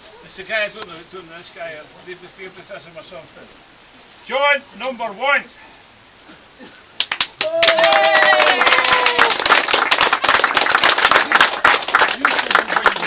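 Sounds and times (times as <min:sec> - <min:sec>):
crowd clapping: 0:07.0 - 0:13.0.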